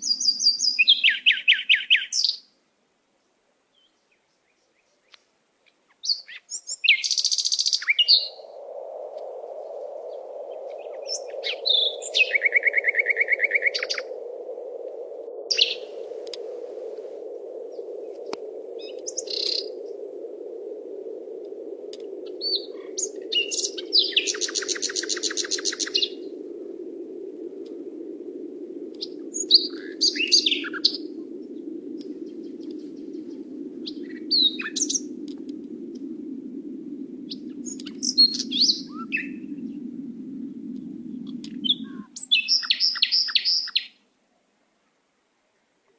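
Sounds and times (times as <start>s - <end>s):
birds chirping and trilling: 0.0s - 2.4s, 5.9s - 8.5s, 10.1s - 14.1s, 15.4s - 16.1s, 17.7s - 19.8s, 22.3s - 26.4s, 29.0s - 35.2s, 37.3s - 39.9s, 41.1s - 44.0s
low hum: 8.2s - 42.2s.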